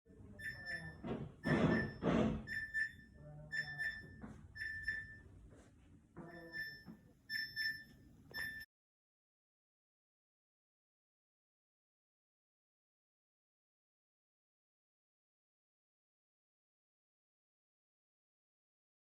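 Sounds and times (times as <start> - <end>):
refrigerator beeping: 0.3 - 5.3, 6.2 - 8.7
rustling knocks: 0.4 - 4.8.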